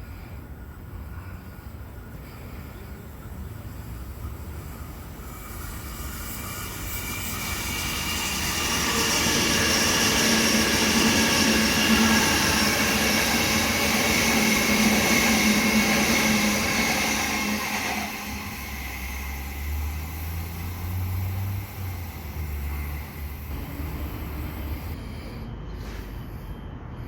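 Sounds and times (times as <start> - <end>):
electric train passing with whine: 0.0 - 27.0.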